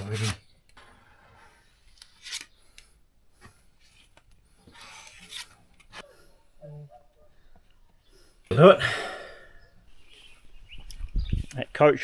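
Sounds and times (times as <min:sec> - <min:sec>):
spreader scraping filler: 0:04.7 - 0:06.0.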